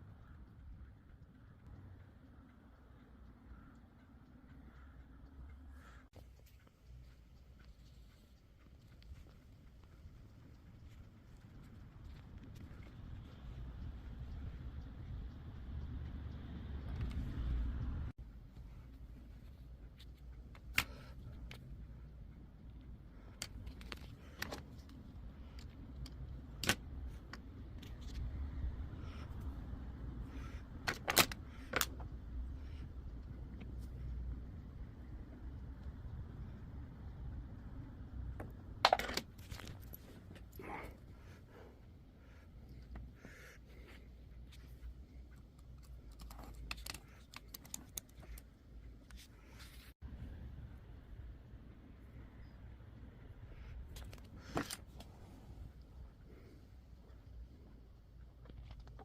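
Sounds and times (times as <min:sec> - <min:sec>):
low steady hum: 0:00.0 - 0:59.0
low steady rumble: 0:00.0 - 0:59.0
clicks of small parts and tools: 0:30.8 - 0:32.1, 0:45.3 - 0:49.3.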